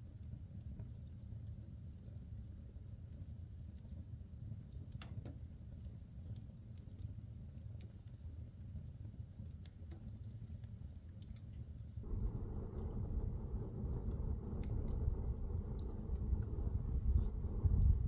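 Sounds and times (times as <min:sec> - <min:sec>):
fire crackling and popping: 0:12.0 - 0:18.0
low rumble of flames: 0:12.0 - 0:18.0.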